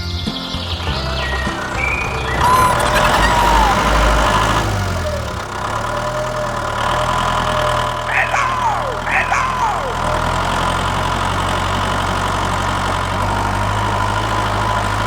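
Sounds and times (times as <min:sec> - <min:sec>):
birds chirping: 0:00.0 - 0:04.5, 0:07.6 - 0:12.1
truck engine idling: 0:00.0 - 0:15.0.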